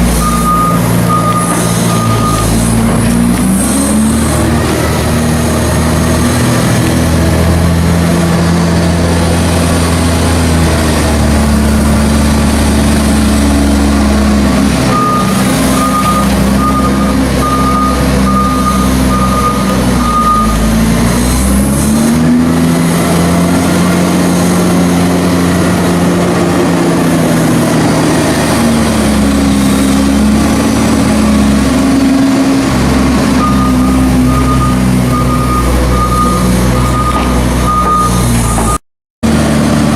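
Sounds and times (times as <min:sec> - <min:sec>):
loader diesel engine working hard: 0:00.0 - 0:39.9
reversing beeper: 0:00.1 - 0:02.7, 0:14.9 - 0:20.7, 0:33.3 - 0:38.8.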